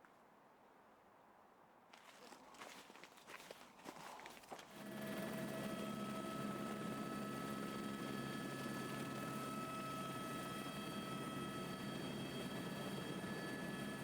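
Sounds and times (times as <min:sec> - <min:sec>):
camera drone motors humming: 0:04.8 - 0:14.0.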